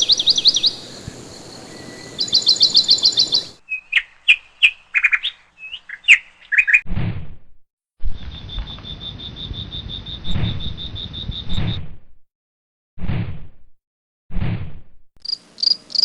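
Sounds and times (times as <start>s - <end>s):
birds chirping and trilling: 0.0s - 6.8s, 8.2s - 11.8s.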